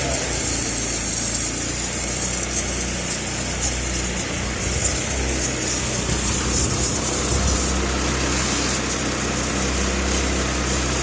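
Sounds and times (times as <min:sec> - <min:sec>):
pressure washer motor hum: 0:00.0 - 0:11.0
water jet hissing: 0:00.0 - 0:11.0.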